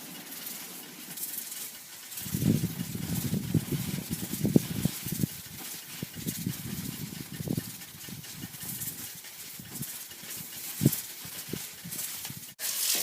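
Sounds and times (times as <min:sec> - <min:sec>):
boiling water sputtering: 0:00.0 - 0:13.0
steam hissing: 0:00.0 - 0:13.0.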